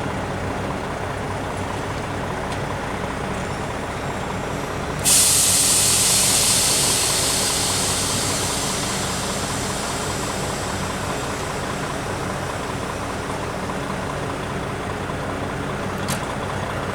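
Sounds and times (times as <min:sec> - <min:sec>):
diesel truck engine idling: 0:00.0 - 0:16.9
compressed air hissing: 0:04.8 - 0:14.6.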